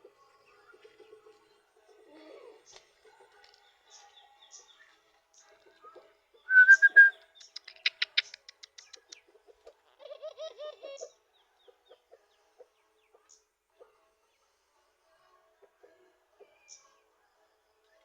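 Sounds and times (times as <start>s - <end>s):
dove cooing: 2.0s - 2.7s, 9.6s - 11.2s
high bird chirps: 6.5s - 8.4s.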